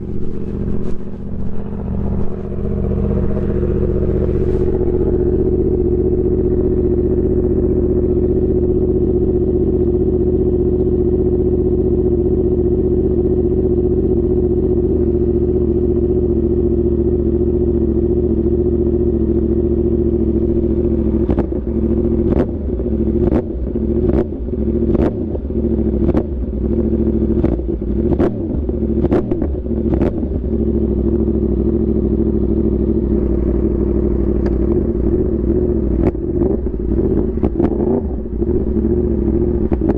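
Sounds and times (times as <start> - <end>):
sharp exhaust cracks: 0.0 - 9.4, 32.8 - 39.9
motorcycle engine running: 0.0 - 39.9.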